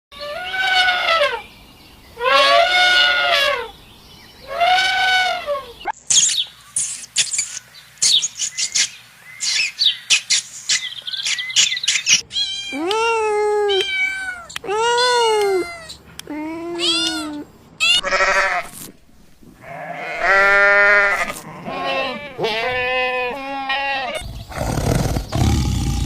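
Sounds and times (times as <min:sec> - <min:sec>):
animal calls: 0:02.2 - 0:03.8, 0:04.4 - 0:05.9.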